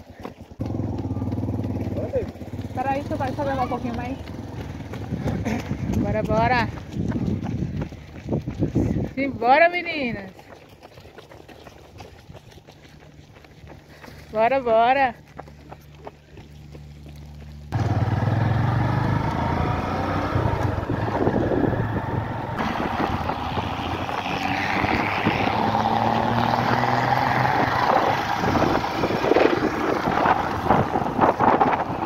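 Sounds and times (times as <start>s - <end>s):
vehicle engine running: 0.4s - 7.9s, 15.2s - 32.0s
wind buffeting microphone: 2.9s - 10.3s, 18.1s - 32.0s.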